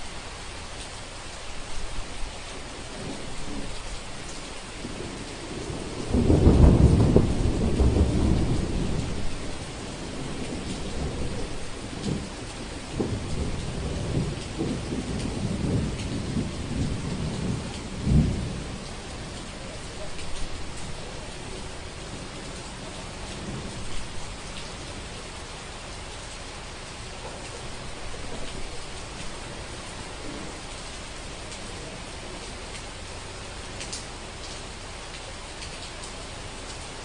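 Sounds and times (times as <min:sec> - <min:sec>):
crackling thunder rumbles: 0:00.0 - 0:37.0
steady rain: 0:00.0 - 0:37.0
thunder rolling: 0:02.9 - 0:24.7, 0:27.2 - 0:32.5.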